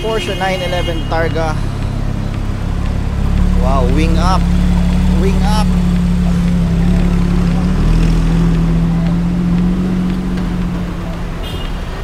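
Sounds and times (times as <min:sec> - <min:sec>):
car engine low drone: 0:00.0 - 0:12.0.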